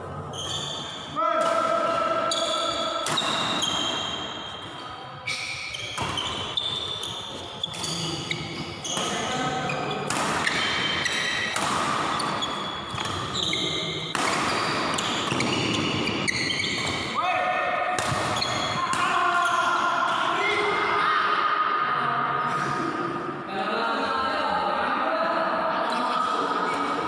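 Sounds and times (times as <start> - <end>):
racket striking shuttlecock: 10.1 - 13.4, 14.1 - 16.1.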